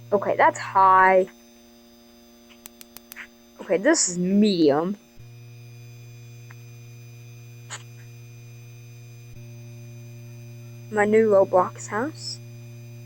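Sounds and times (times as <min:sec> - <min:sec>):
ceiling fan motor hum: 0:02.6 - 0:13.0.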